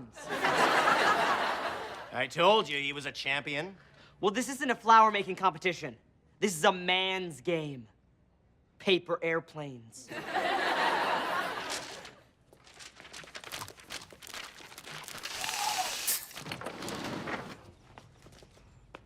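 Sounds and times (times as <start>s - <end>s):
studio audience laughing: 0.2s - 2.1s, 10.1s - 12.2s.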